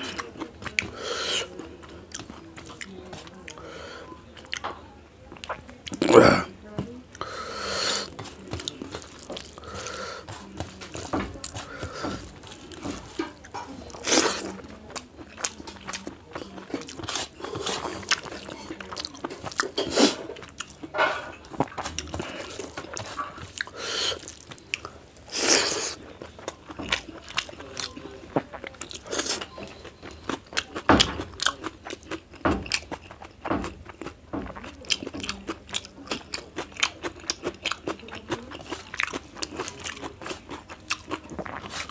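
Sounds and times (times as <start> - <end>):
chewing and crunching food: 0.0 - 41.9.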